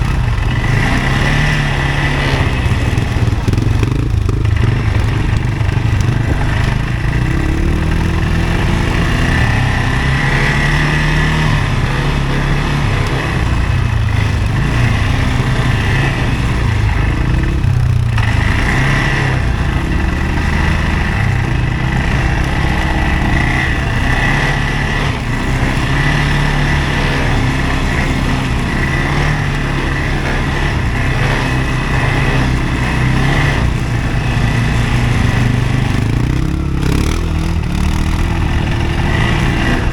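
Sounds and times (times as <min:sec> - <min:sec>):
atv engine drone: 0:00.0 - 0:39.9.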